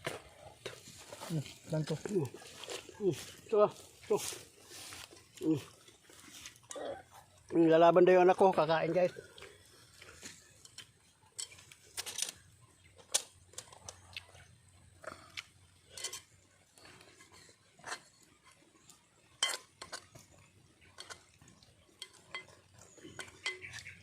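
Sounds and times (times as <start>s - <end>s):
utensils clinking on plates: 10.5s - 12.3s, 15.8s - 18.5s, 19.3s - 24.0s.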